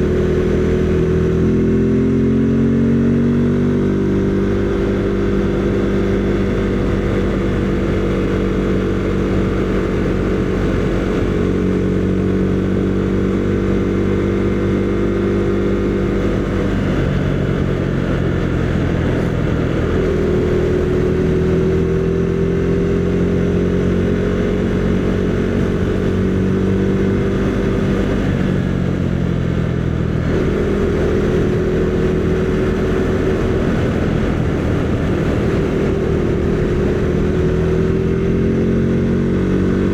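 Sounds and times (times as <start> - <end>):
motorcycle engine running: 0.0 - 39.9
wind rush: 4.3 - 39.9.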